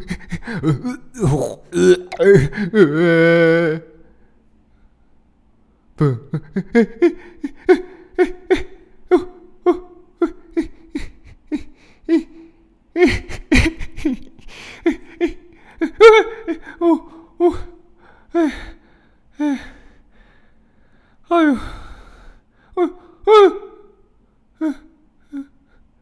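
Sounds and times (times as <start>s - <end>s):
person gasping cries: 0.6s - 2.6s.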